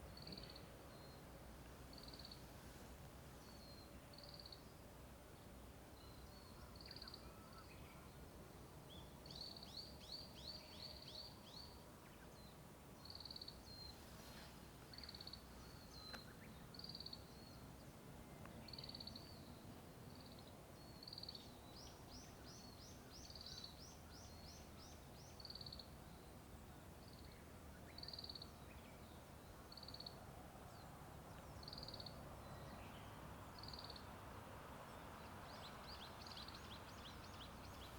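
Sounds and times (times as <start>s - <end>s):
songbirds singing: 5.5s - 37.9s
faint road traffic rumble: 28.7s - 37.9s.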